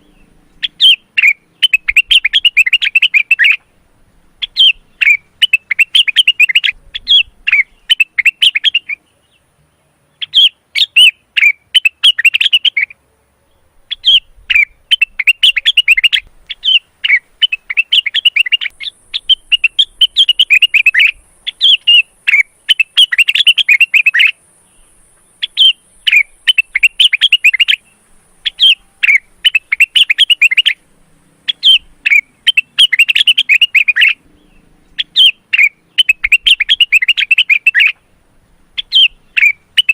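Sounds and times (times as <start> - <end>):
bird singing chattering phrases: 0.0 - 39.9.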